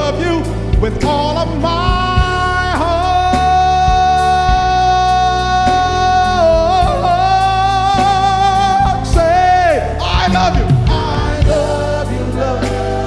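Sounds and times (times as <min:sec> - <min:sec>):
bass: 0:00.0 - 0:13.0
drum strokes: 0:08.0 - 0:13.0.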